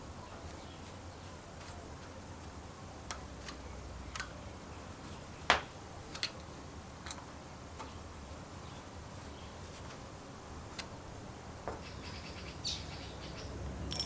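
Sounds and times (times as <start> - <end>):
small parts clicking and tapping: 3.1 - 4.4, 5.5 - 8.0.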